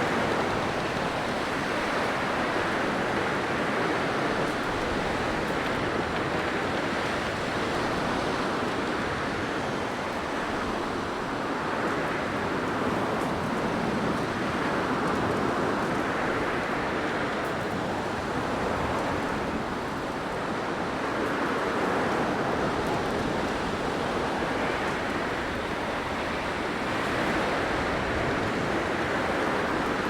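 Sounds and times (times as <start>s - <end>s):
blizzard wind blowing: 0.0s - 30.0s.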